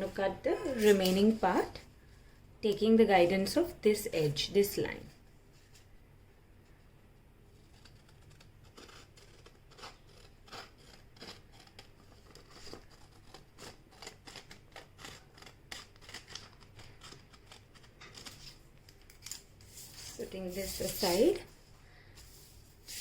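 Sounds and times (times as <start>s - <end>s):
scissors snipping paper: 7.7s - 21.4s.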